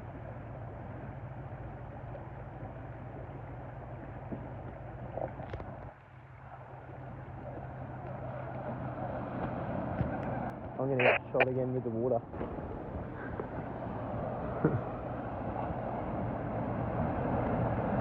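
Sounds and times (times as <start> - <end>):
vehicle engine humming: 0.0 - 18.0
broad rushing noise: 8.7 - 11.4.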